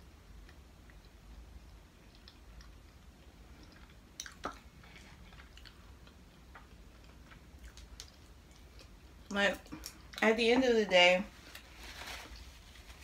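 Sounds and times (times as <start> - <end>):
faint chewing: 0.4 - 10.4
wet mouth clicks: 3.6 - 4.7.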